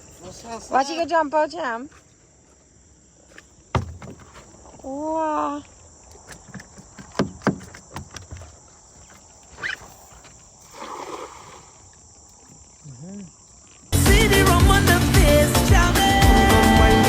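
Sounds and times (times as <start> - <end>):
crickets chirping: 0.0 - 17.0
sharp knocks: 3.7 - 4.4, 6.4 - 8.4
loud music: 14.0 - 17.0.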